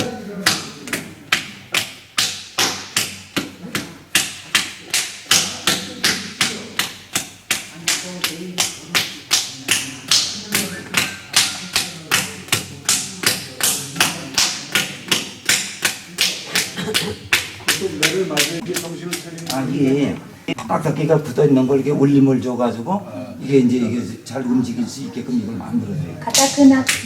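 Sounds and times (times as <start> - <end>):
clay being beaten: 0.0 - 20.2, 26.2 - 27.0.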